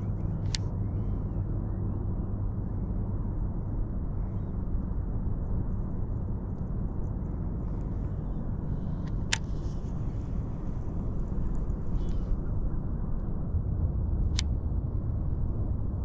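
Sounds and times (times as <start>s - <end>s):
low rumbling noise: 0.0s - 16.0s
sharp click: 14.3s - 14.5s.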